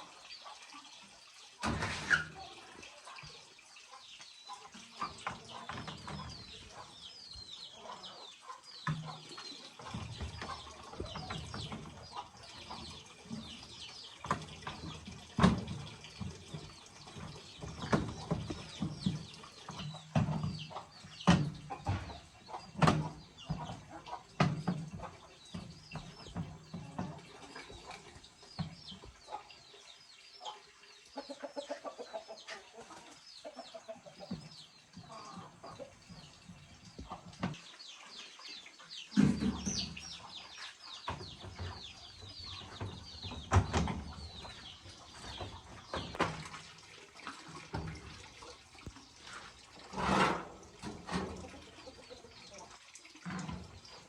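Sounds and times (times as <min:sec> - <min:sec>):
chickens clucking: 0:00.0 - 0:54.0
chicks peeping: 0:03.9 - 0:15.2, 0:15.8 - 0:46.3
sharp knocks and clatters: 0:08.8 - 0:27.3.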